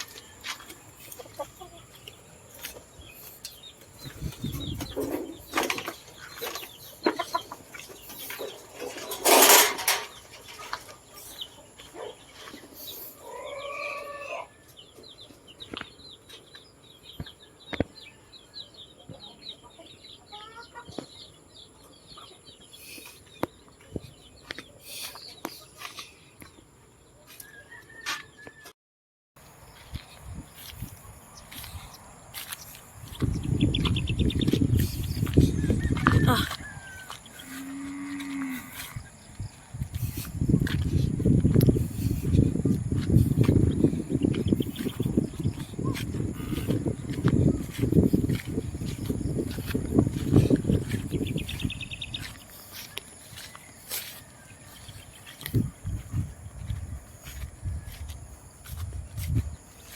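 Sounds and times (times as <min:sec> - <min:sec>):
chicken call: 0:13.2 - 0:14.5, 0:35.9 - 0:37.1.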